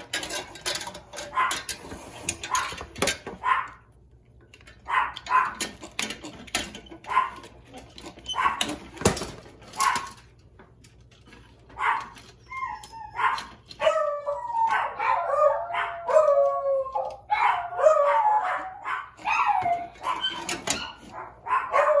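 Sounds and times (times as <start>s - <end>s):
dogs whining and howling: 6.5s - 8.9s, 11.7s - 22.0s.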